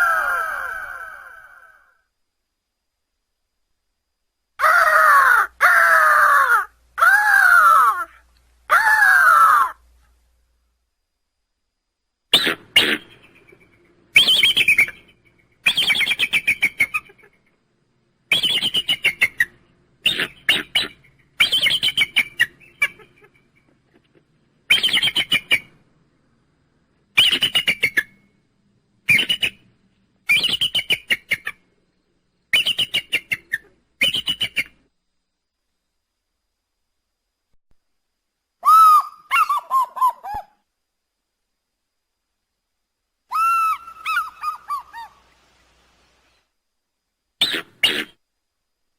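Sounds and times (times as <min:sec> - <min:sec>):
eagle chittering call: 0:12.4 - 0:17.4, 0:18.3 - 0:23.6, 0:38.6 - 0:40.5, 0:43.3 - 0:45.3, 0:47.4 - 0:48.2.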